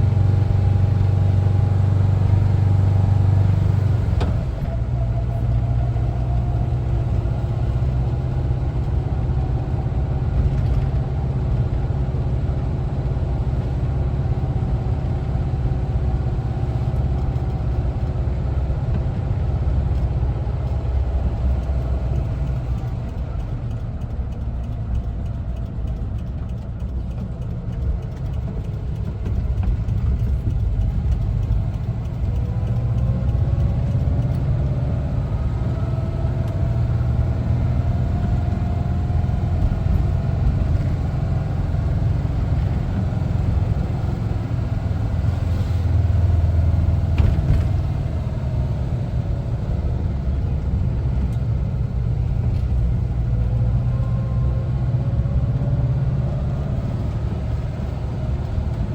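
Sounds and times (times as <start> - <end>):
van engine rumbling: 0.0 - 58.9.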